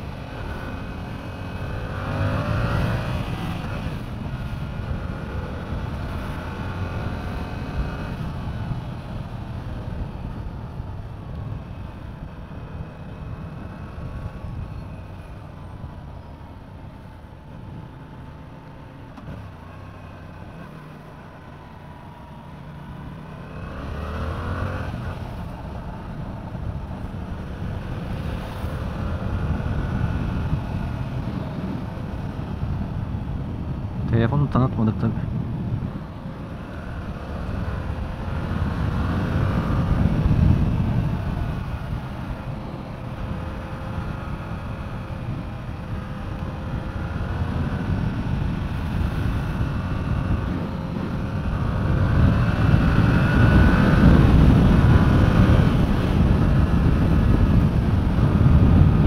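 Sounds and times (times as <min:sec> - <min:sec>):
motorcycle engine accelerating: 0:35.0 - 0:59.0.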